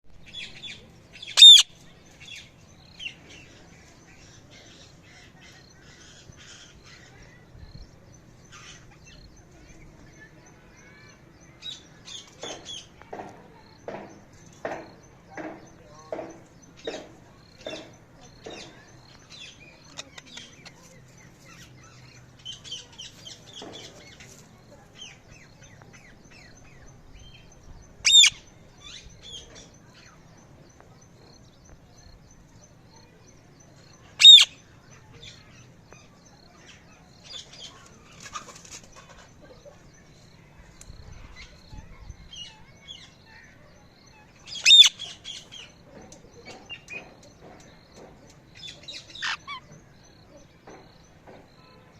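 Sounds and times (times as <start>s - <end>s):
parrot chirps and twitters: 1.2s - 1.8s, 28.0s - 29.0s, 34.2s - 34.6s, 44.1s - 45.6s, 48.6s - 49.7s
parrot calling: 1.3s - 1.7s, 28.0s - 28.4s, 34.2s - 34.5s, 44.6s - 45.0s, 49.2s - 49.6s.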